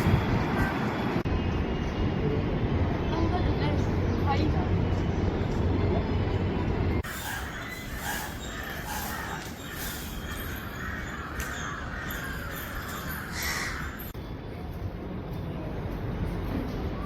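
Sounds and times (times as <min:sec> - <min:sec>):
crows cawing: 0:07.0 - 0:14.1.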